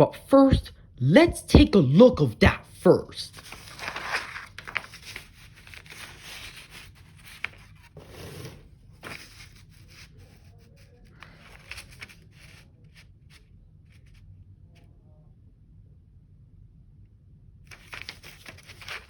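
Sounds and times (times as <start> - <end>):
pages turning: 3.3 - 10.2, 11.2 - 12.6, 17.7 - 19.0
paper rustling: 3.3 - 13.4, 17.7 - 19.0.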